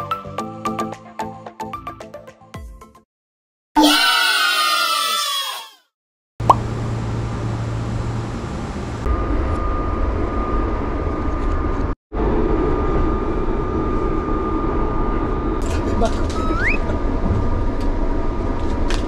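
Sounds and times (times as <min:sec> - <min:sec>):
train carriage rumble: 0:06.8 - 0:19.0.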